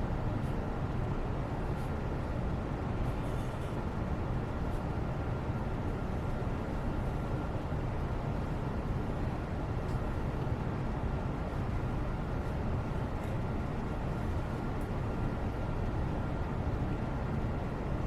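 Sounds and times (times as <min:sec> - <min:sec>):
low rumbling background noise: 0:00.0 - 0:18.0
faint light ticks: 0:09.8 - 0:10.5.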